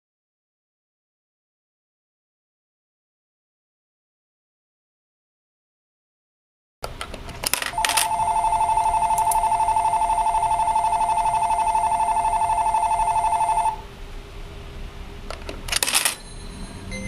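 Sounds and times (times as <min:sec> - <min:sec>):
clicks: 0:06.8 - 0:09.6
electric bell ringing from small speaker: 0:07.8 - 0:13.8, 0:16.1 - 0:17.0.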